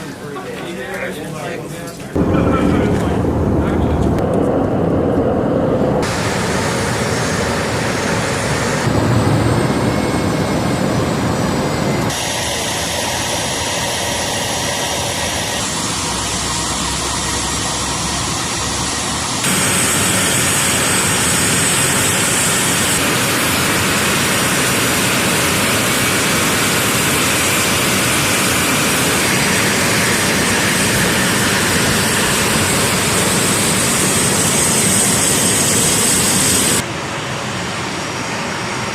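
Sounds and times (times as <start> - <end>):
jet engine rushing with whine: 2.2 - 38.9.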